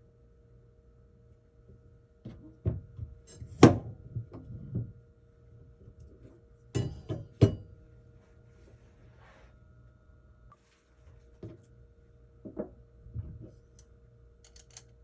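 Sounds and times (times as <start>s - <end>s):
faint steady hum: 0.0s - 15.0s
objects knocking and clattering: 12.4s - 13.6s.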